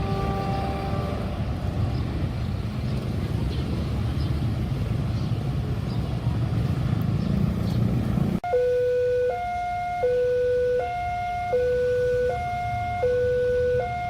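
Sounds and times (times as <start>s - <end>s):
two-tone electronic warning alarm: 0.0s - 1.2s, 8.4s - 14.0s.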